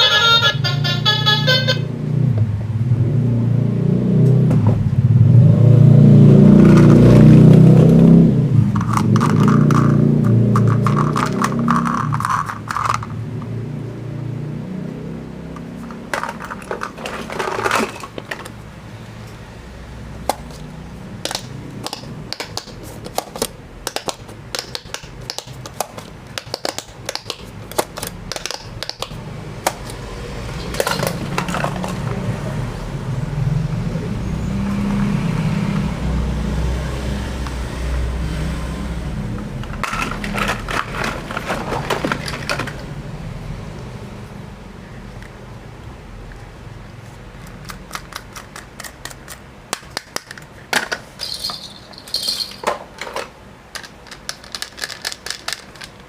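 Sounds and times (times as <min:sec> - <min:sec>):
plastic toys clattering: 0:08.7 - 0:13.2, 0:15.7 - 0:18.6, 0:21.2 - 0:29.9, 0:30.5 - 0:32.3, 0:39.6 - 0:42.9, 0:47.4 - 0:56.0.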